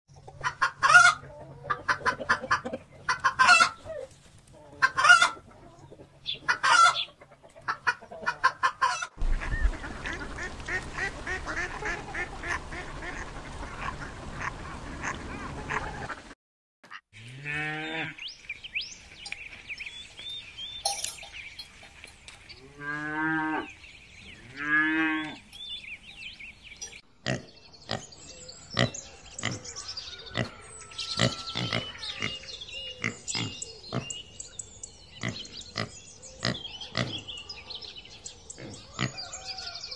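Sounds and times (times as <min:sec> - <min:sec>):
many birds calling: 0:00.1 - 0:16.3, 0:16.9 - 0:39.9
chickens clucking: 0:00.1 - 0:16.4, 0:24.4 - 0:30.6, 0:31.2 - 0:34.4, 0:35.1 - 0:37.6.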